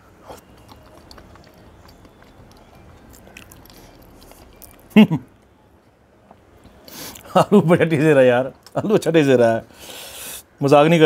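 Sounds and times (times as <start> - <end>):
man chewing food: 0.0 - 5.5.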